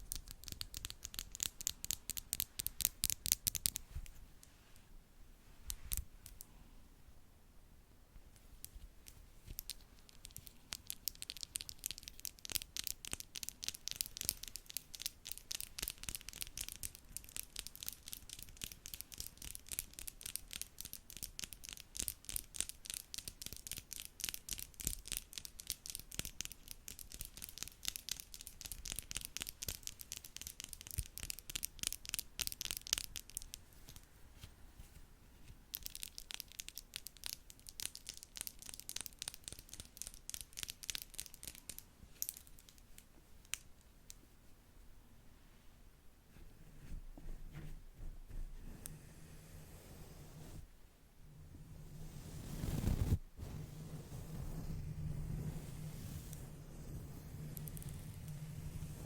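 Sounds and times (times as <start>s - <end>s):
brush scratching microphone: 51.9s - 59.0s.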